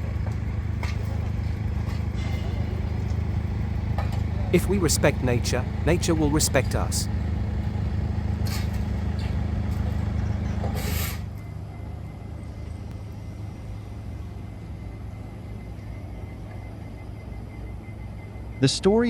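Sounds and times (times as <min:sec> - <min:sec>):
traffic hum: 0:00.0 - 0:15.1
vehicle engine rumbling: 0:00.0 - 0:15.3.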